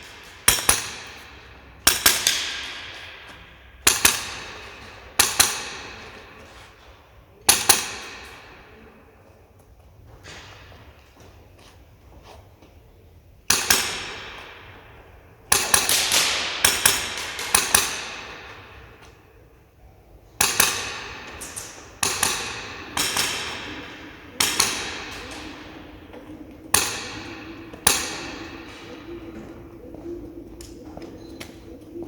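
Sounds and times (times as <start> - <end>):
airsoft gun firing sharp shots: 0.0 - 3.2, 15.5 - 19.0, 20.4 - 26.1, 26.7 - 28.8.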